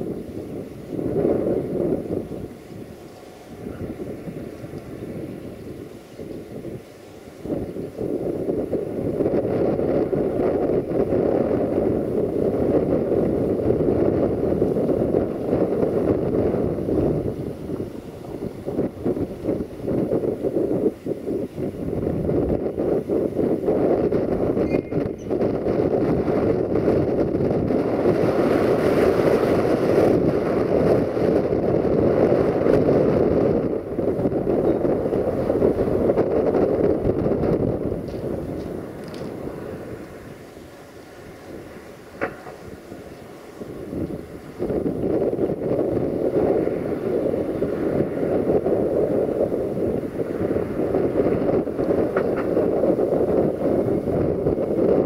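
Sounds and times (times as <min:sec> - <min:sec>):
distant freight train rumble: 0:00.0 - 0:55.0
wind buffeting microphone: 0:00.0 - 0:55.0.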